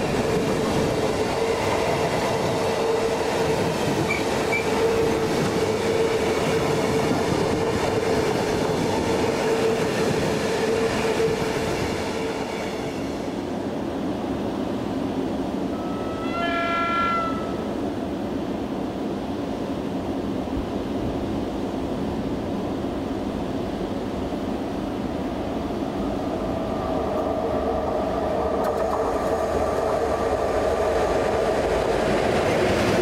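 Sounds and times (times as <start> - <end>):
approaching train: 0.0 - 33.0
freight train rumbling past: 0.0 - 33.0
train horn: 1.3 - 8.2, 15.7 - 17.7.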